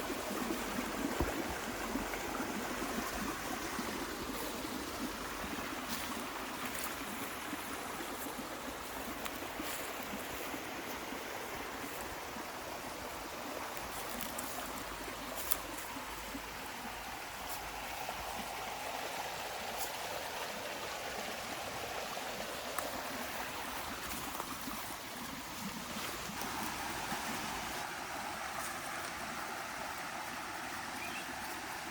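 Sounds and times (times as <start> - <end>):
flowing water rushing: 0.0 - 31.9.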